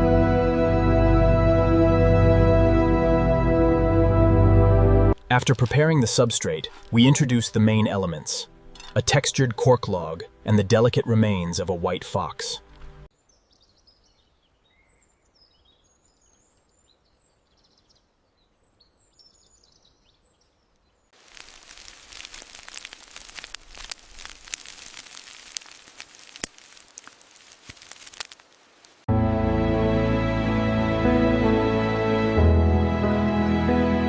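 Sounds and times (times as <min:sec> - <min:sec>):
music: 0:00.0 - 0:05.2, 0:29.1 - 0:34.0
faint bird chirps: 0:13.2 - 0:21.1
crackling hiss with clicks: 0:21.2 - 0:29.1.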